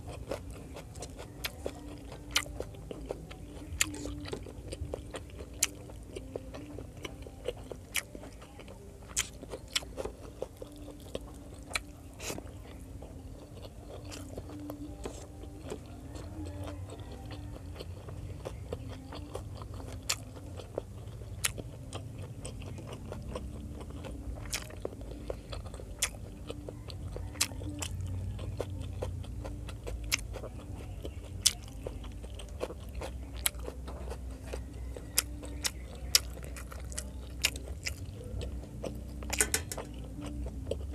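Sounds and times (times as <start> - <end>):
chewing food: 0.0 - 40.9
mouth clicks and crunches: 0.0 - 40.9
low hum: 10.1 - 40.9.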